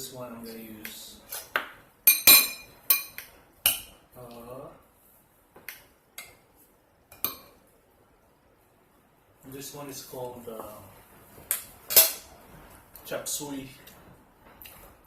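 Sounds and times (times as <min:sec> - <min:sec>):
metal utensils clinking on plates: 0:02.1 - 0:03.9, 0:11.5 - 0:12.3.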